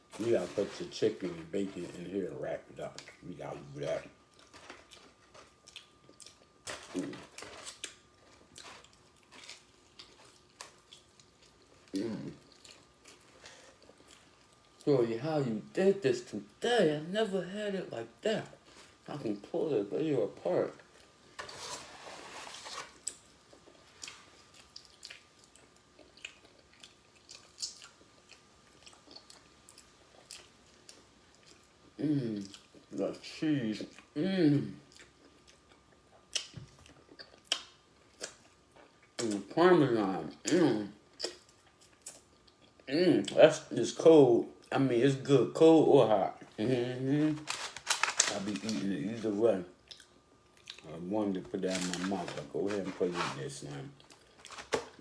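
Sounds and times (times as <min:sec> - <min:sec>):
bread rustling: 0:00.0 - 0:14.8, 0:18.3 - 0:25.0, 0:46.4 - 0:49.6, 0:50.8 - 0:55.0
chewing and food handling: 0:00.0 - 0:15.1, 0:18.0 - 0:43.8, 0:46.2 - 0:55.0.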